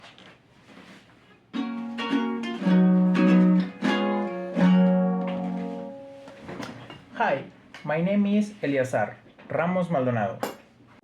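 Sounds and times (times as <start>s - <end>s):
strummed string instrument chords: 1.6s - 6.4s.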